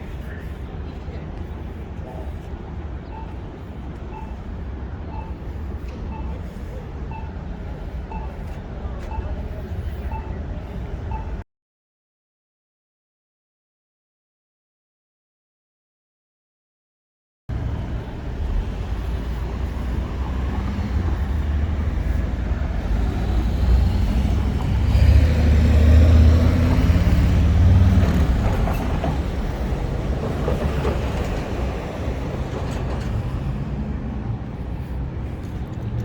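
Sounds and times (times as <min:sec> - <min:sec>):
vehicle engine rumbling past: 0:17.5 - 0:36.0.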